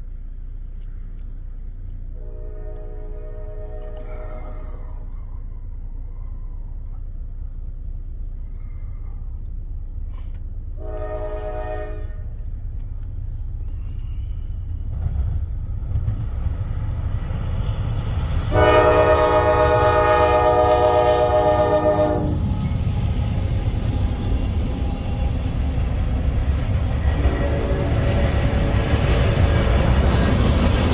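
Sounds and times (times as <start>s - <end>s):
diesel locomotive rumble: 0.0s - 30.9s
train air horn blasts: 2.1s - 5.1s, 10.8s - 12.7s, 17.8s - 30.9s.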